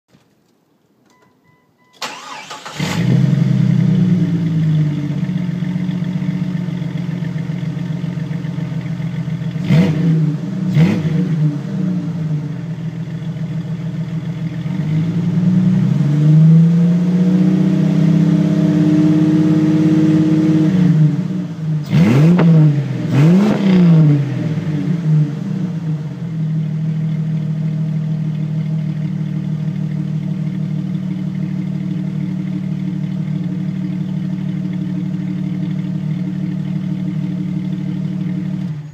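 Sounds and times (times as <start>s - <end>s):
car engine starting and revving: 2.0s - 38.9s.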